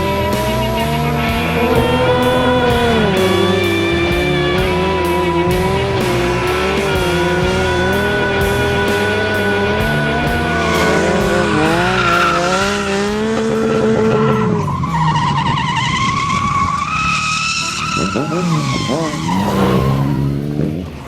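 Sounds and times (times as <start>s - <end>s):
tyres squealing and skidding: 0.0s - 21.0s
vehicle engines revving: 0.0s - 21.0s.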